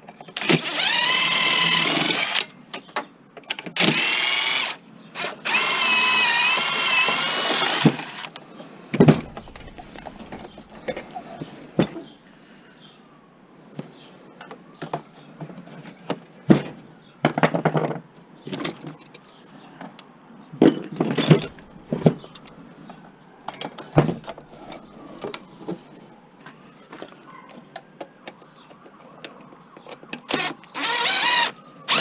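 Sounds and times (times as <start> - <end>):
metal scrap clanking: 20.7 - 22.6.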